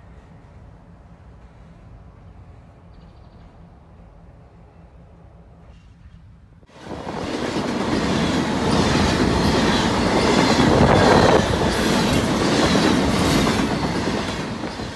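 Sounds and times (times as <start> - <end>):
train wheels clattering on rails: 5.7 - 14.9.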